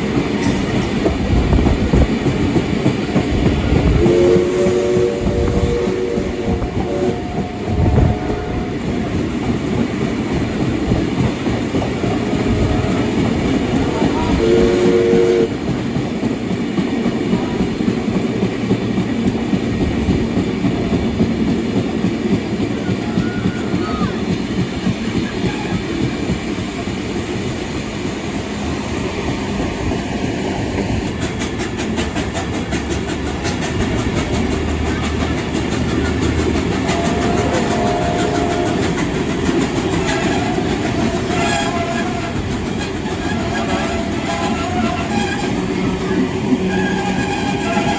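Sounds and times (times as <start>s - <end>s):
train rumble with rail noise: 0.0s - 47.9s
steam train whistle: 3.8s - 9.4s, 12.0s - 15.6s, 22.8s - 24.2s, 25.3s - 26.3s, 36.2s - 47.9s.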